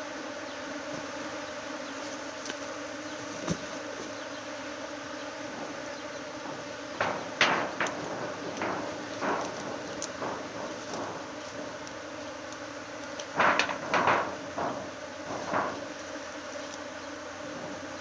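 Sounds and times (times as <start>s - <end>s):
honeybees buzzing: 0.0s - 18.0s
sharp knocks: 5.4s - 16.7s.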